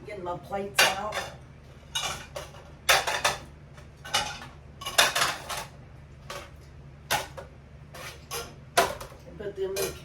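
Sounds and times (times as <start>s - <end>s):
plates clinking and clattering: 0.8s - 5.7s.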